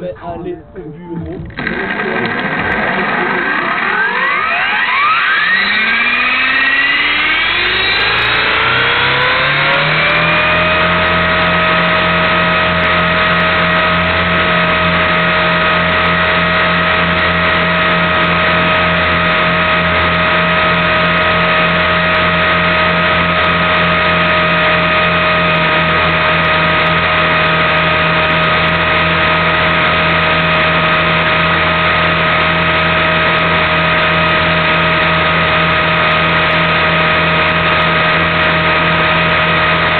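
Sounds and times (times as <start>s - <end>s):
low rotor hum: 0.0s - 39.9s
electric motor whine: 1.2s - 39.9s.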